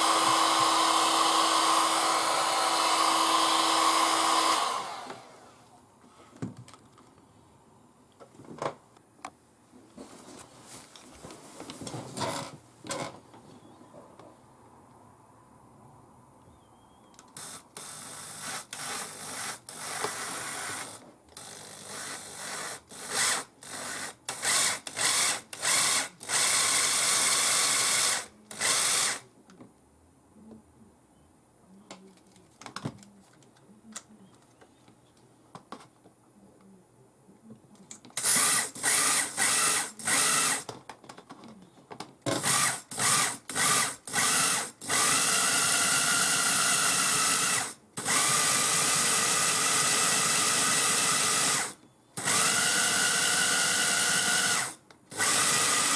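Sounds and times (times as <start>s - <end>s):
power tool bursts: 0.0s - 5.4s, 38.2s - 40.7s, 42.4s - 55.9s.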